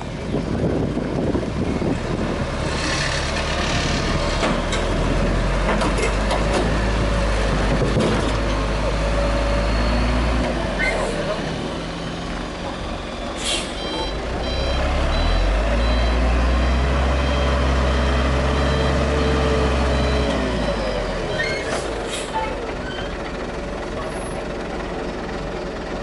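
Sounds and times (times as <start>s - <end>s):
diesel engine droning: 0.0s - 26.0s
reversing alarm beeping: 11.8s - 21.7s.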